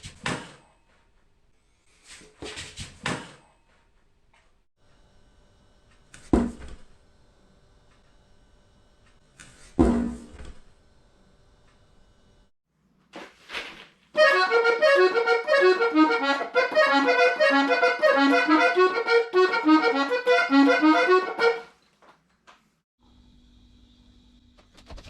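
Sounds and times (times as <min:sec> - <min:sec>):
piano accordion melody: 0:14.2 - 0:21.8.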